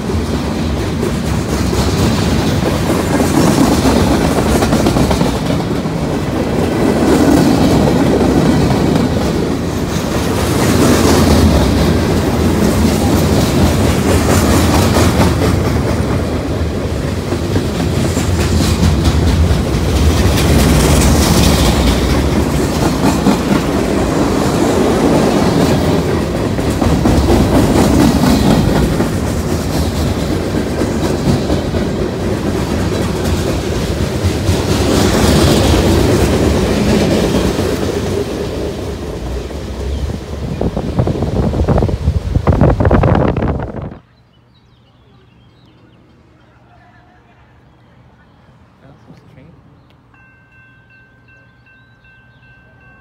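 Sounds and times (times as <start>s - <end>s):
train wheels clattering over rails: 0.0s - 42.4s.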